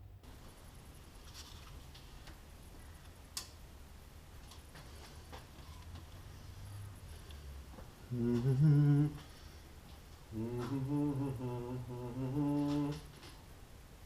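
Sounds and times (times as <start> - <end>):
man humming: 8.1 - 9.3, 10.3 - 13.3.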